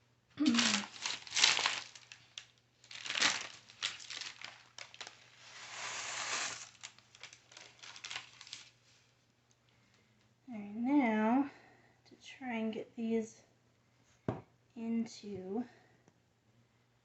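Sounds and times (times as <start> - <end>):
paper crinkling and rustling: 0.4 - 9.1.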